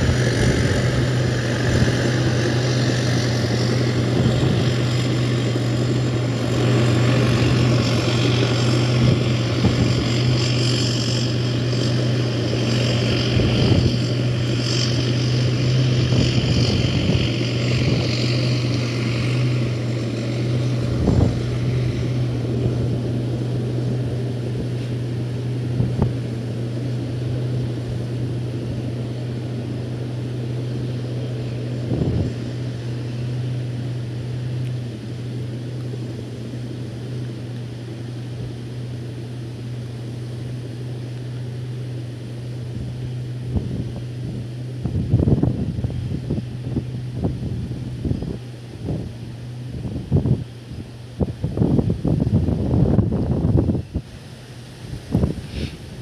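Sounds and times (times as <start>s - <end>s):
motor droning: 0.0s - 56.0s
wind-like rumbling noise: 0.0s - 56.0s.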